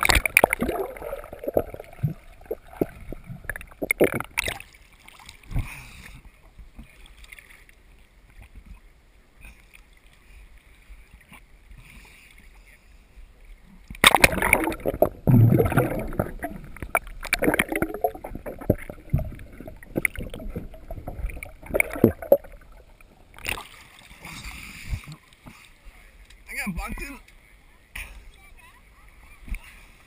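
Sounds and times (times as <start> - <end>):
swimmer splashing water: 14.0 - 24.5.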